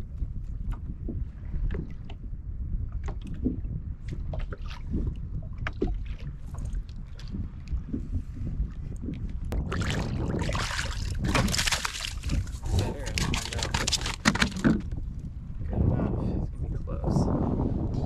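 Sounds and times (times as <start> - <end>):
water lapping against hull: 0.0 - 15.8
wind rumble on microphone: 0.0 - 18.0
water splashing: 9.6 - 15.0.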